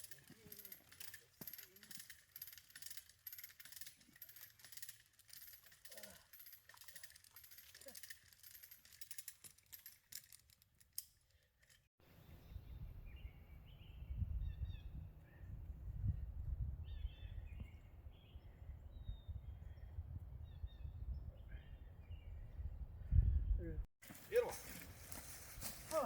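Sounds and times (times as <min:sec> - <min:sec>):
birds chirping: 0:12.2 - 0:15.7.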